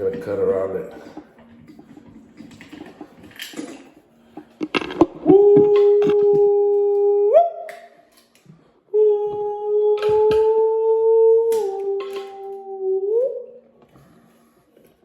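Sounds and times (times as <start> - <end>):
cutting scrapes and clicks: 2.8 - 6.4.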